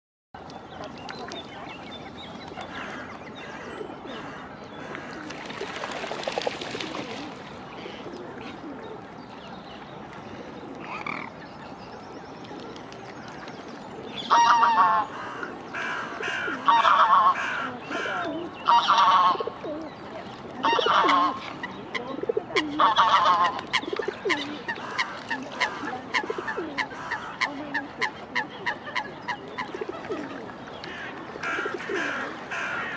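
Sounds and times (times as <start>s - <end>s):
waterfowl honking: 14.3s - 19.6s, 20.6s - 21.4s, 22.6s - 29.8s.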